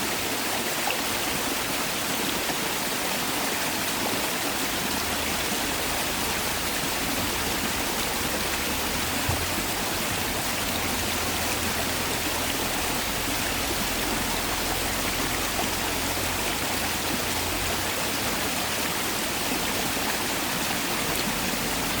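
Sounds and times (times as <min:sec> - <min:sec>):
stream rushing over rocks: 0:00.0 - 0:22.0
faint knock: 0:09.2 - 0:09.7.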